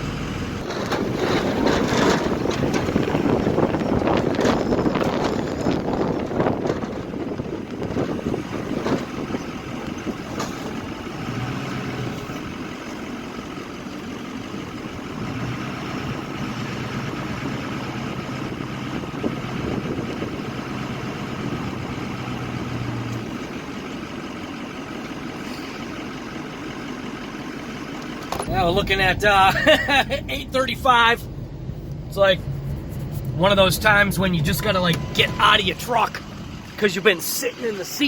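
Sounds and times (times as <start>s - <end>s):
truck engine idling: 0.0s - 38.0s
low even hum: 28.5s - 35.5s.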